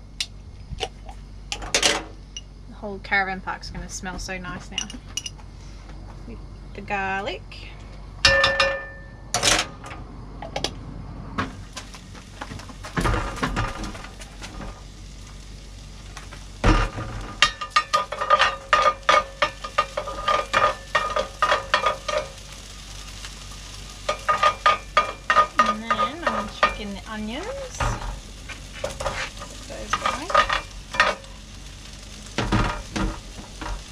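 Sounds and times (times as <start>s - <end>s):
food sizzling in a frying pan: 11.4s - 33.9s
utensil stirring against pan: 16.7s - 33.9s.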